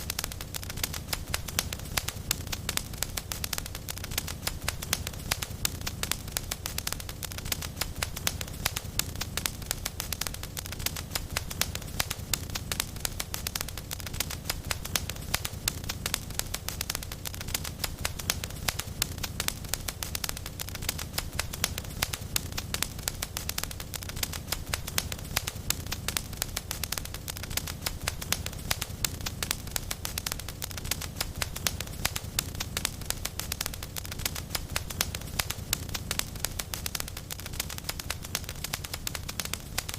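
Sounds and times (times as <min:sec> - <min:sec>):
fire crackling and popping: 0:00.0 - 0:39.9
low fire rumble: 0:00.0 - 0:39.9.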